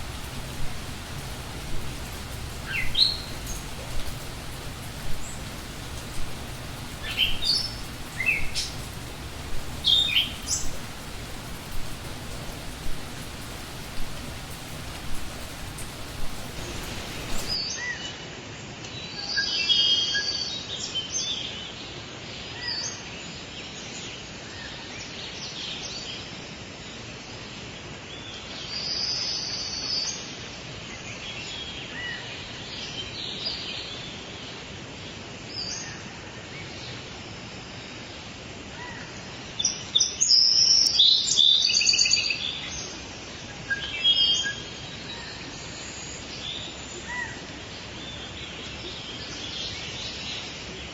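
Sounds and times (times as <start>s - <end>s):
birds calling and chirping: 0.0s - 17.6s
burst of rain-like noise: 0.0s - 17.6s, 42.8s - 50.9s
faint background hiss: 0.0s - 17.6s, 26.8s - 50.9s.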